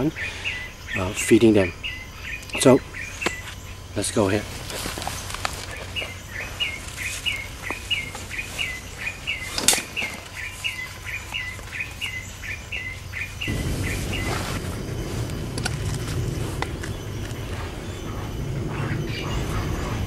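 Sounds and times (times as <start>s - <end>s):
bird chirping: 0.0s - 20.0s
low rustling: 12.9s - 20.0s.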